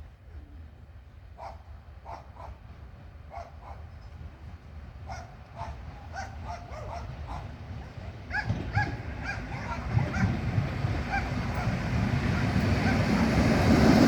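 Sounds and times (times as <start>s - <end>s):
dog barking and yipping: 5.1s - 7.5s, 8.3s - 10.4s, 11.1s - 11.8s, 12.4s - 13.3s.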